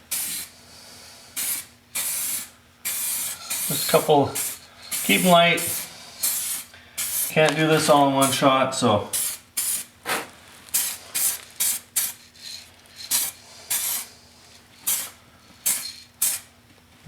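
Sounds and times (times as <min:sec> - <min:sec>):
spray can hissing: 0:00.1 - 0:00.5, 0:01.4 - 0:07.5, 0:09.1 - 0:09.9, 0:10.7 - 0:14.1, 0:14.8 - 0:16.5.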